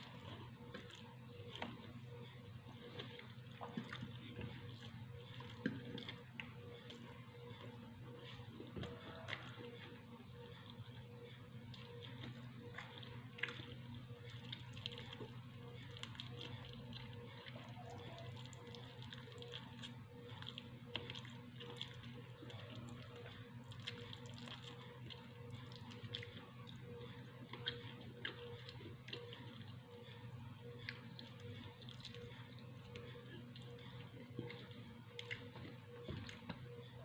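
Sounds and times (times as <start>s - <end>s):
person chewing: 11.7s - 26.9s, 27.5s - 29.7s, 30.8s - 36.5s.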